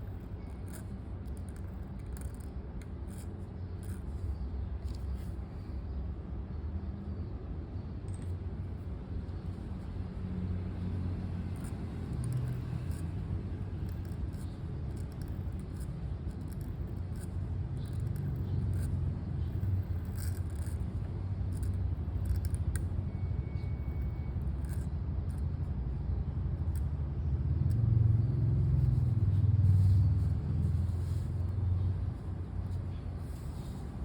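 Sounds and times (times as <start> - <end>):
pen writing on paper: 0.1 - 5.4, 11.3 - 22.9, 23.6 - 25.7.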